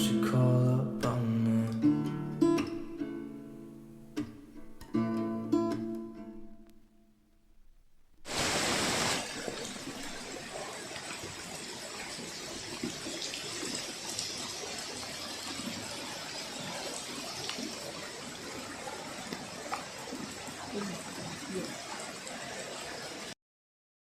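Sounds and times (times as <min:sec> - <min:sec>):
running water rushing: 0:07.8 - 0:23.4
water splashes and drips: 0:08.2 - 0:23.4.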